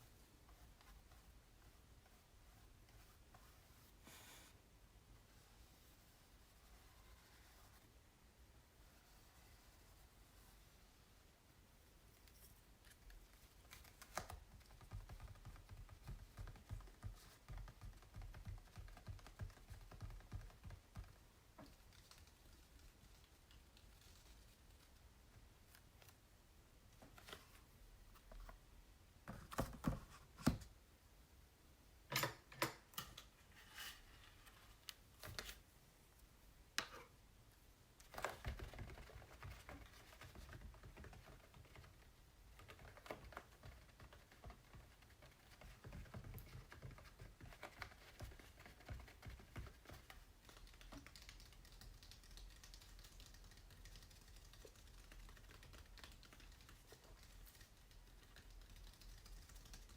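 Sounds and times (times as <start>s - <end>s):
scratching on painted canvas: 5.3s - 8.0s, 8.8s - 11.0s.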